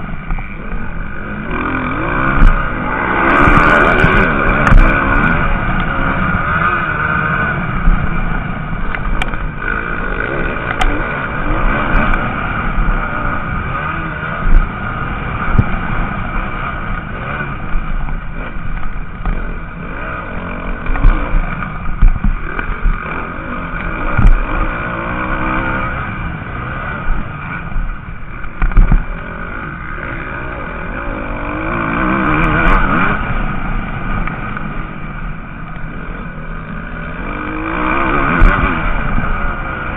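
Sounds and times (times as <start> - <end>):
motocross bikes revving: 0.0 - 39.9
low thumps on microphone: 20.9 - 23.0, 24.1 - 24.5, 28.4 - 29.1.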